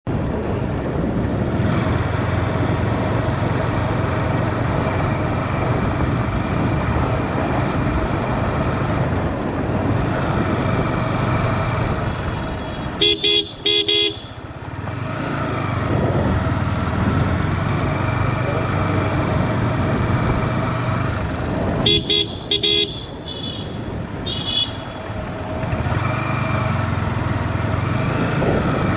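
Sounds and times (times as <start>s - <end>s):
motorcycle engine and wind noise: 0.0s - 28.9s
motorcycle horn beeps: 12.5s - 14.4s, 21.8s - 25.1s.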